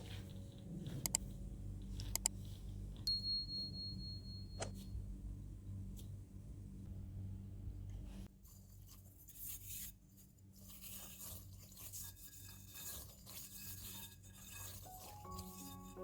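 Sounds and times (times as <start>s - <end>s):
soft rubbing and scraping: 8.1s - 16.0s.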